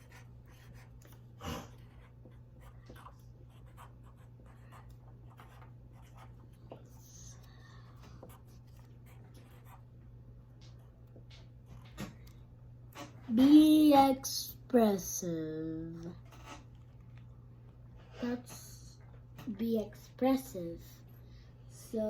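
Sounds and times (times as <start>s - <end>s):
pencil scratching on paper: 0.0s - 7.2s, 8.0s - 9.9s, 16.2s - 16.7s
steady low hum: 0.0s - 22.0s.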